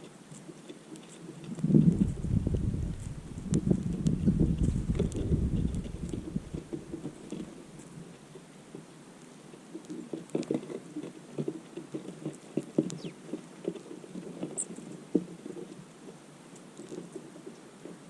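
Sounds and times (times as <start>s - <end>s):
birds pecking seed: 0.0s - 18.0s
faint high bird chirps: 13.0s - 13.2s.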